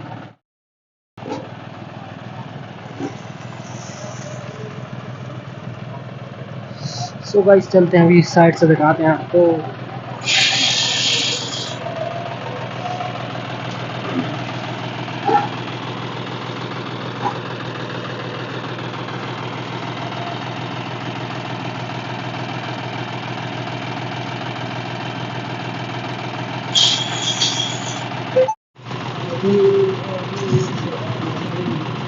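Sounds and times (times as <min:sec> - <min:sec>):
tractor diesel engine idling: 0:01.2 - 0:32.0
high hiss: 0:10.2 - 0:11.7.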